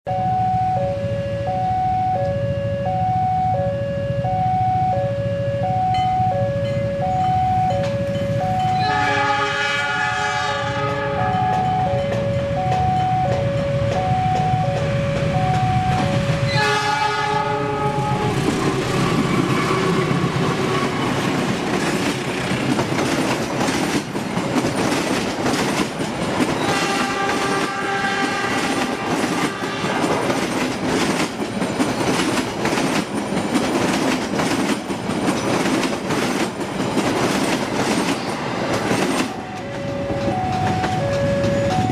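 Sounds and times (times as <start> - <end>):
two-tone electronic warning chime: 0.1 - 9.0, 11.1 - 16.7, 39.3 - 41.9
train wheels rumbling and clacking: 6.6 - 41.9
train horn: 8.4 - 11.8, 15.9 - 21.1, 26.6 - 30.3.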